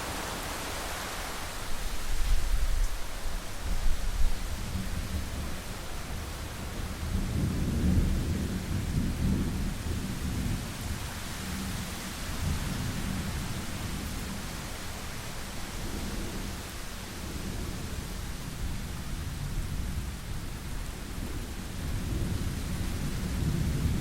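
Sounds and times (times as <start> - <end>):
steady rain falling: 0.0 - 24.0
low rumble of thunder: 3.7 - 24.0.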